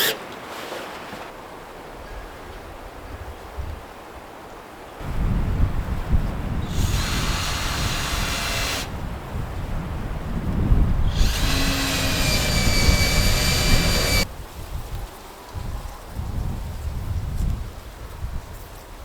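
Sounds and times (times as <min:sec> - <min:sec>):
low wind rumble: 0:05.0 - 0:18.6
power drill running: 0:06.7 - 0:08.9, 0:11.1 - 0:14.3.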